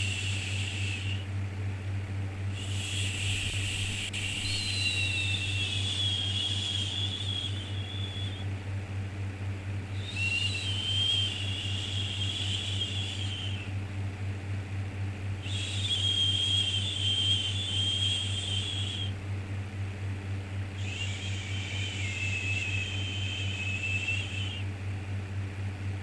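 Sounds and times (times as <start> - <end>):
low hum: 2.4 - 8.7.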